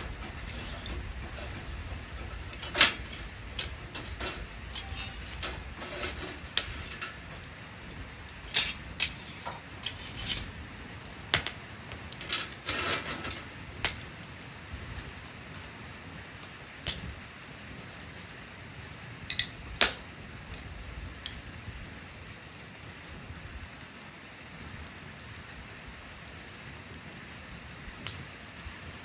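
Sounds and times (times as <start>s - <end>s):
low background rumble: 0.0s - 18.0s
sharp clicks and light knocks: 11.3s - 14.1s.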